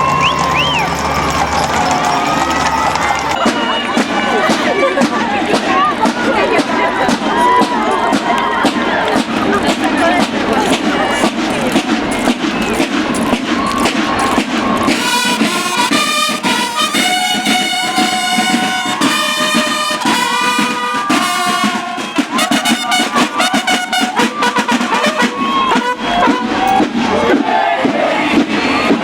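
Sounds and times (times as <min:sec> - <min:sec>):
crowd noise: 0:00.0 - 0:29.0
brass band playing: 0:14.9 - 0:26.8.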